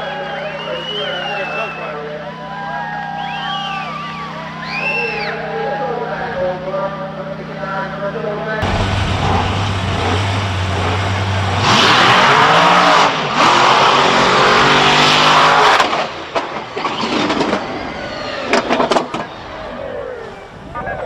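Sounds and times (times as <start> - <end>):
monster truck engine revving: 8.6 - 20.2.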